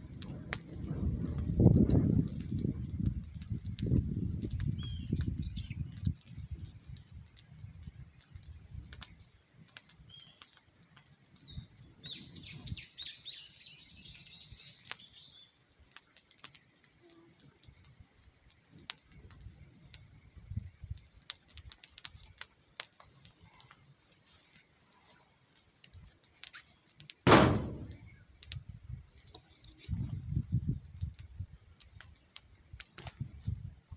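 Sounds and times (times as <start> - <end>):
small clicks: 1.2 - 11.6, 15.7 - 23.9, 30.9 - 33.2
birds chirping: 11.4 - 15.5
loud thump: 27.3 - 28.1.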